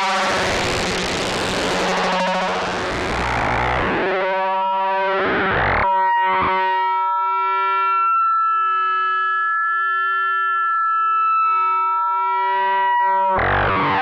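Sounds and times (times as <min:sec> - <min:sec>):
sustained electronic synthesizer tone: 0:00.0 - 0:07.9, 0:11.5 - 0:14.0.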